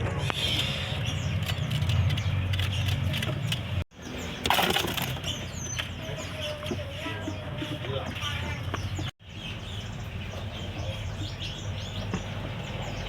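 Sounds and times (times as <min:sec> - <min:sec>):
caged songbirds chirping: 0:00.0 - 0:13.0
street traffic rumble: 0:00.0 - 0:13.0.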